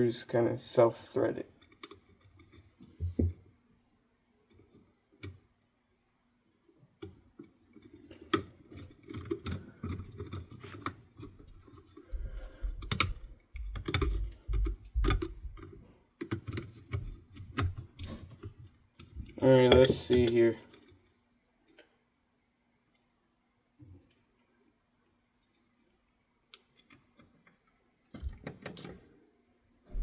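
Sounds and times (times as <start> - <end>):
small screws clicking and tapping: 1.6 - 3.4, 7.0 - 21.1.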